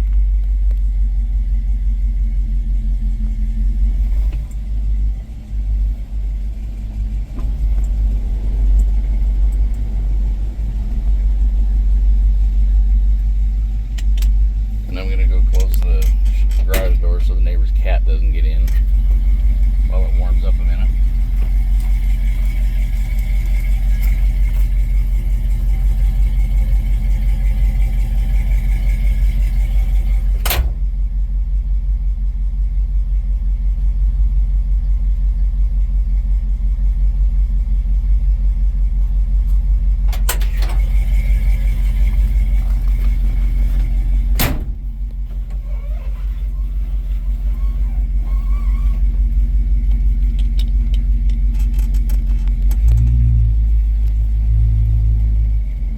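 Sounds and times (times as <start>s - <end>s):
engine idling: 0.0s - 55.9s.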